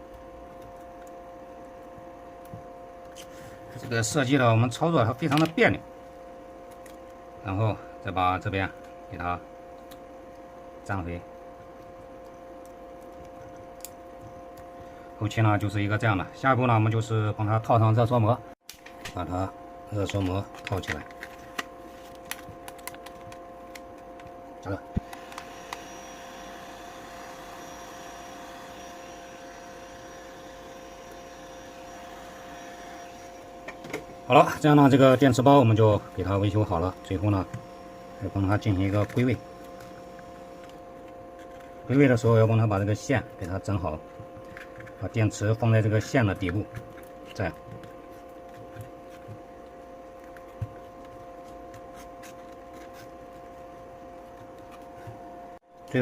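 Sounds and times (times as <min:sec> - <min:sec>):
faint steady hum: 0:00.0 - 0:56.0
heat gun blowing with whine: 0:24.6 - 0:43.8.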